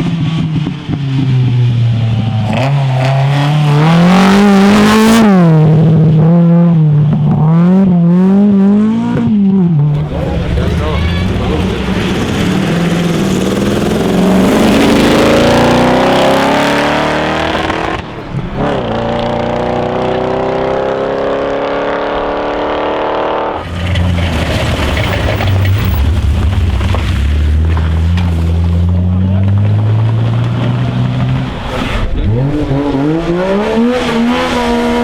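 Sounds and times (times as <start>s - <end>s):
rally car engine accelerating: 0.0s - 35.0s.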